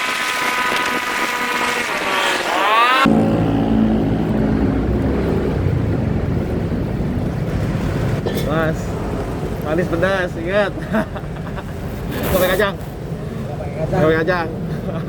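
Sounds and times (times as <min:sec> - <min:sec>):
motorcycle engine revving: 0:00.0 - 0:08.3
low engine and road rumble: 0:00.0 - 0:15.0.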